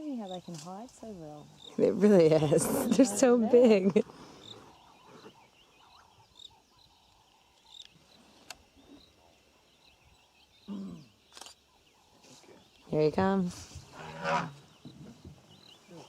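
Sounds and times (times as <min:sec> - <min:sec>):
faint bird chirps: 0:02.9 - 0:13.2.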